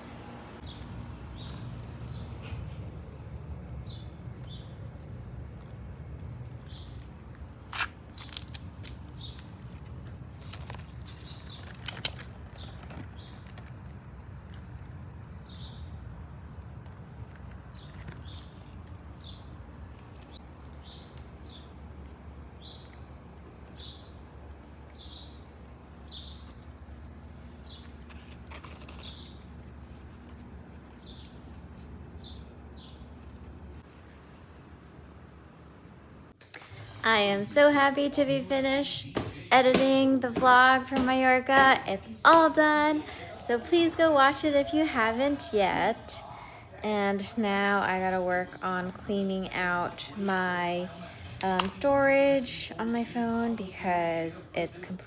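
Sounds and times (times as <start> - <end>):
low steady rumble: 0.0 - 46.1
small birds chirping: 0.6 - 34.2
small bird chirping: 17.5 - 33.8.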